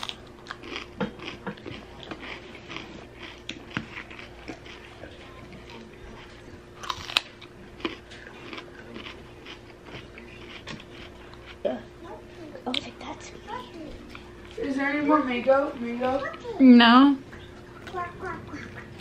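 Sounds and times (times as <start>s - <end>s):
chewing crunchy food: 0.0s - 11.7s.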